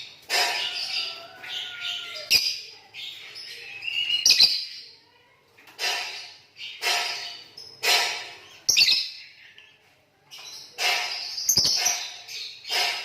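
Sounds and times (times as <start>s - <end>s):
sharp knocks: 6.8s - 8.4s, 10.8s - 13.0s.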